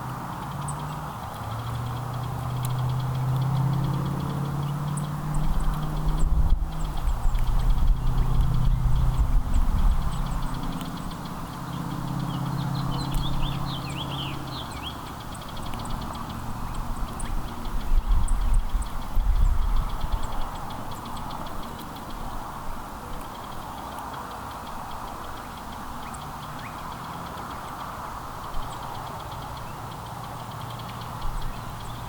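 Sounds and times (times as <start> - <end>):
low engine hum: 0.0 - 23.0
small songbirds chirping: 0.0 - 32.0.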